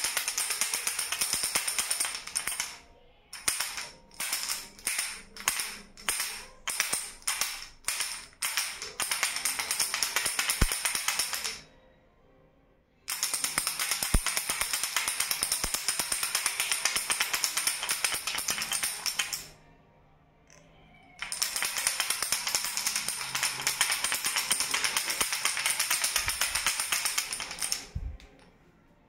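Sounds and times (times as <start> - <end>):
baby rattle shaken: 21.2 - 28.2.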